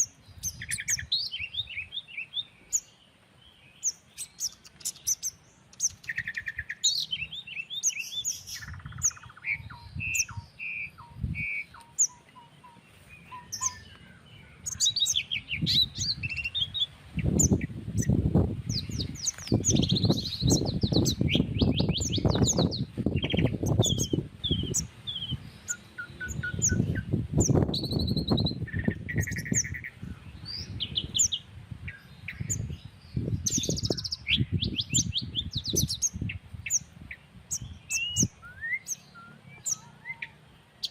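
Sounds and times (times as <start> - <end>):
wind rumbling on microphone: 0.0 - 2.8, 5.8 - 40.4
birds chirping and trilling: 0.0 - 40.9.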